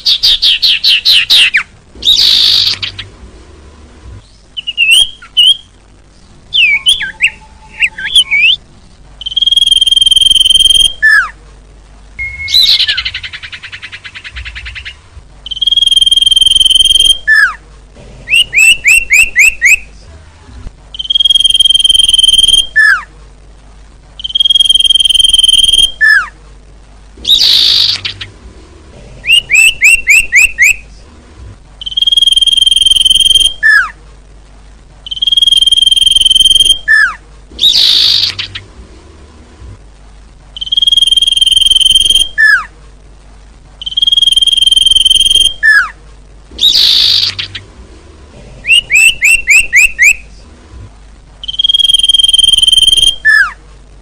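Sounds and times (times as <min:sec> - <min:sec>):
songbird calls and trills: 0:04.2 - 0:05.7, 0:06.5 - 0:08.6, 0:09.2 - 0:11.4, 0:12.2 - 0:17.6, 0:18.3 - 0:19.9, 0:20.9 - 0:23.1, 0:24.2 - 0:26.3, 0:27.2 - 0:28.3, 0:29.2 - 0:30.8, 0:31.8 - 0:34.0, 0:35.0 - 0:38.7, 0:40.6 - 0:42.7, 0:43.8 - 0:46.0, 0:46.6 - 0:47.6, 0:48.6 - 0:50.2, 0:51.4 - 0:53.6.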